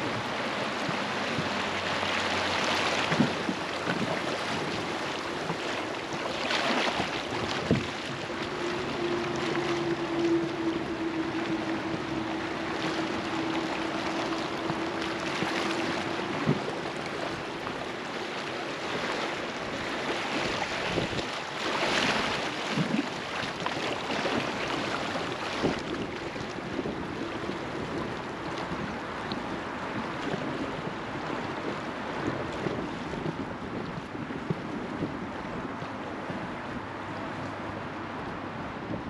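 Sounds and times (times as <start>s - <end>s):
river water rushing and splashing: 0.0s - 39.0s
wind buffeting microphone: 0.0s - 39.0s.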